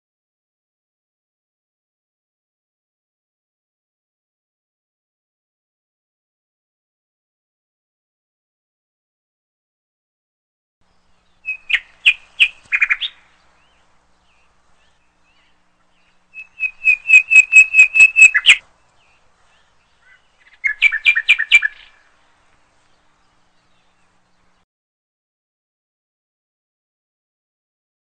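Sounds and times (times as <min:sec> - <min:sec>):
bird chirping: 0:10.8 - 0:24.6.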